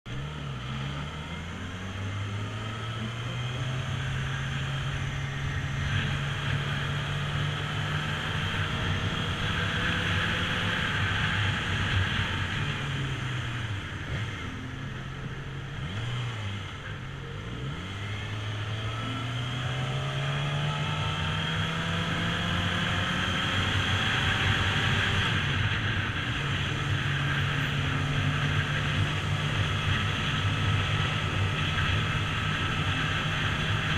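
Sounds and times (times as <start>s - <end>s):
motorbike engine accelerating: 0.1s - 33.9s
wind and road noise: 0.1s - 33.9s.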